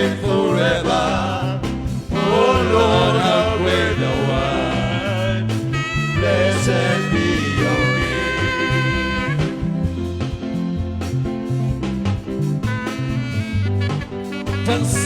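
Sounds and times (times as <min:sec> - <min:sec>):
person singing wordless lines: 0:00.0 - 0:09.4, 0:14.6 - 0:15.0
worship band playing: 0:00.0 - 0:15.0.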